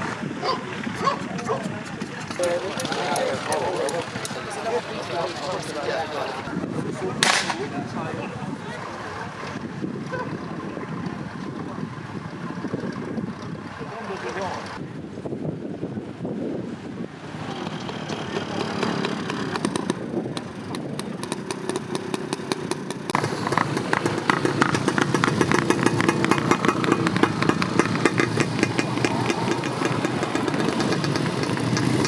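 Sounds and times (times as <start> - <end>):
motorcycle engine running: 0.0 - 5.5, 6.5 - 32.0.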